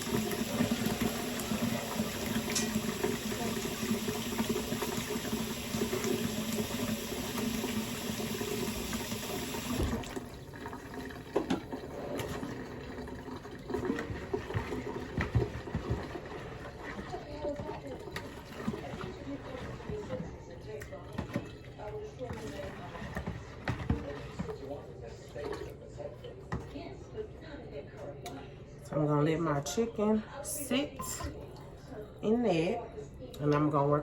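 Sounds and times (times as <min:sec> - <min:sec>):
tap running into sink: 0:00.0 - 0:10.2, 0:13.7 - 0:16.4.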